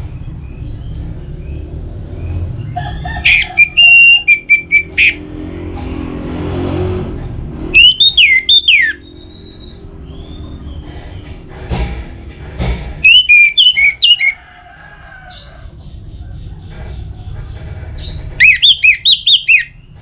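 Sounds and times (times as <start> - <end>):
thrush singing: 3.2 - 5.2, 7.7 - 10.1.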